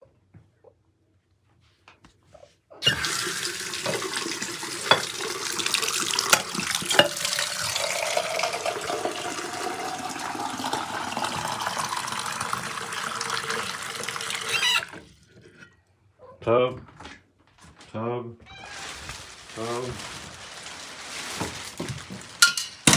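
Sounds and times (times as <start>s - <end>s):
tap water running hard: 2.8s - 15.1s.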